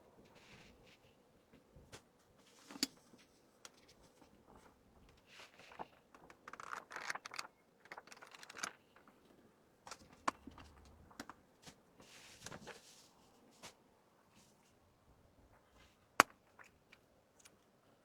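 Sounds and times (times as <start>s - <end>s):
packaging crinkling: 5.9s - 9.1s.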